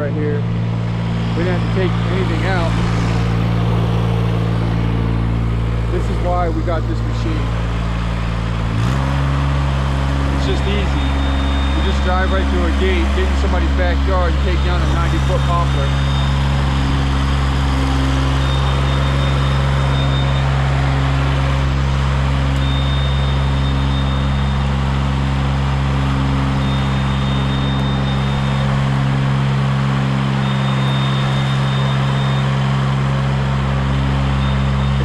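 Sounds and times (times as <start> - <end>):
tracked lift engine running: 0.0 - 35.0
high thin tone: 0.2 - 7.6.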